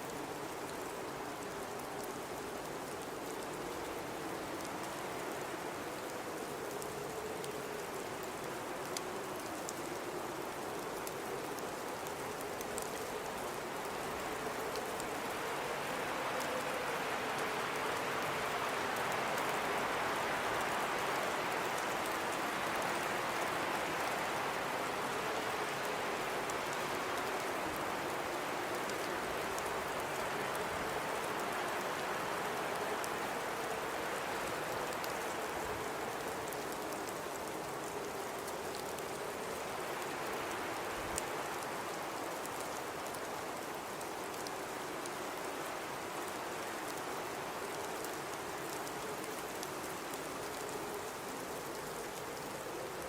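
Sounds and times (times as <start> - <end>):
faint low wind howl: 0.0 - 53.0
faint ticks: 6.0 - 15.4.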